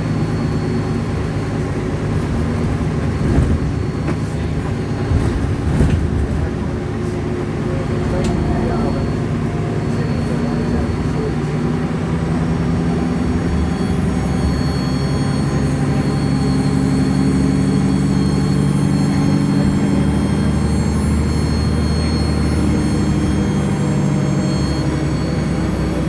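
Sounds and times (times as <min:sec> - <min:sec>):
bus engine drone: 0:00.0 - 0:26.0
high whistling whine: 0:08.1 - 0:26.0.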